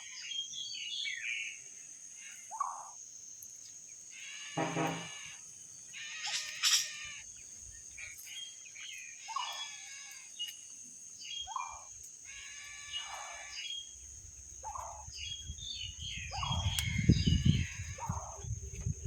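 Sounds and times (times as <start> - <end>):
short harsh bird calls: 4.1 - 7.3
high-pitched buzz: 4.6 - 5.3.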